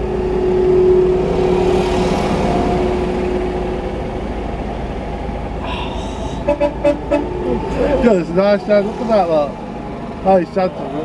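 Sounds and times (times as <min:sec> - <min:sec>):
steady droning tone: 0:00.0 - 0:11.0
tractor engines rumbling: 0:00.0 - 0:11.0.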